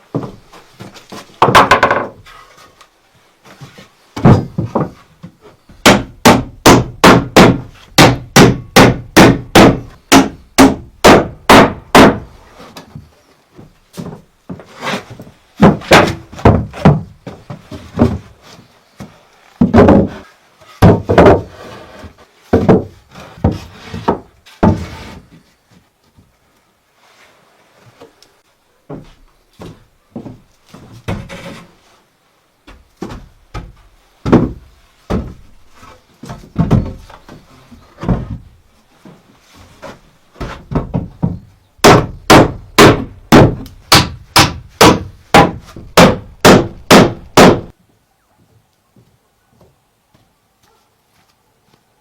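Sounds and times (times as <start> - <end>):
hand tool striking wood: 5.8 - 12.3, 15.6 - 18.2, 33.0 - 35.4, 40.4 - 47.7.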